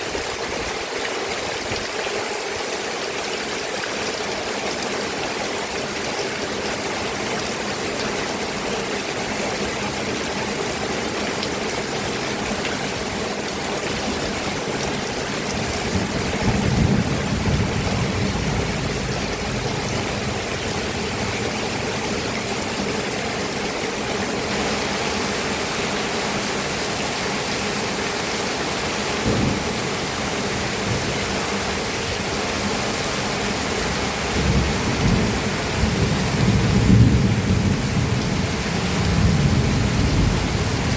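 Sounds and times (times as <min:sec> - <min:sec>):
steady rain falling: 0:00.0 - 0:40.9
low thunder rumbles: 0:15.4 - 0:21.9, 0:29.2 - 0:32.2, 0:33.9 - 0:40.9.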